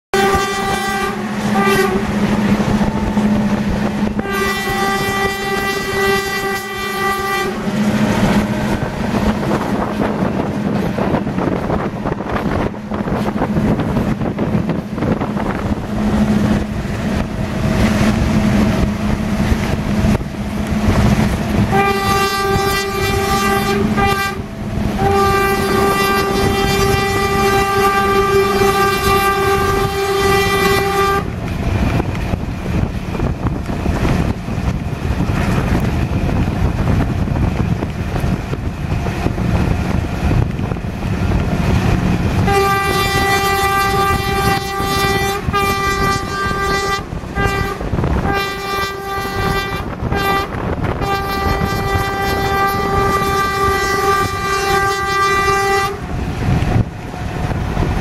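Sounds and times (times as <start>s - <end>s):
train horn blasts: 0.1s - 11.1s, 19.6s - 31.4s, 42.4s - 56.2s
train rumbling and track rattle: 0.1s - 58.0s.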